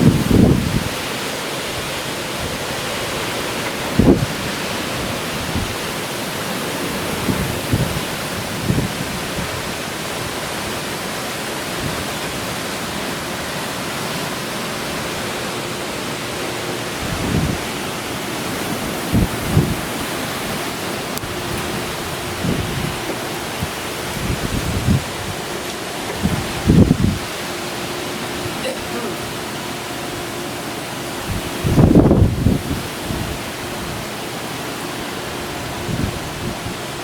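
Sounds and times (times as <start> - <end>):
wind buffeting microphone: 0.0 - 13.1, 16.8 - 27.5, 31.0 - 34.3, 35.2 - 37.0
wind and driving rain: 0.0 - 37.0.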